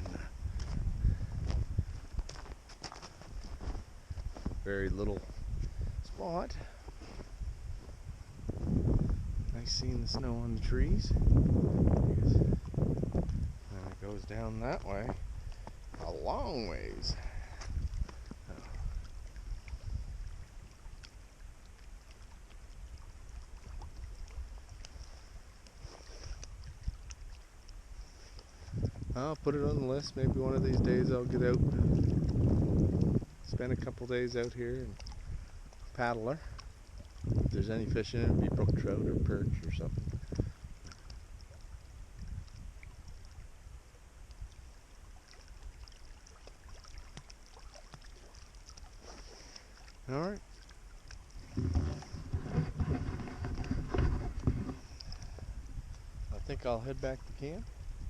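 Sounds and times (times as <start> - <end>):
wind rumble on microphone: 0.0 - 46.0, 51.1 - 58.0
faint ticks: 40.1 - 43.4.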